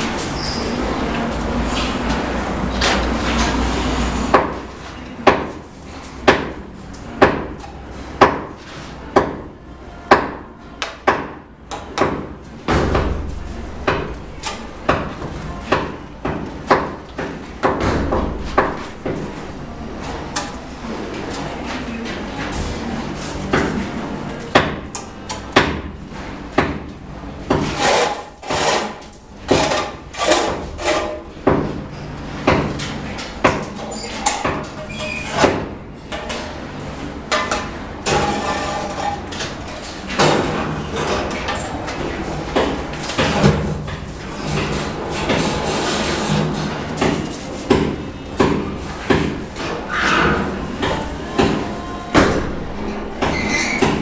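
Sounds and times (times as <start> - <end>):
trowel knocking and scraping bricks: 27.5 - 31.6, 37.4 - 39.5.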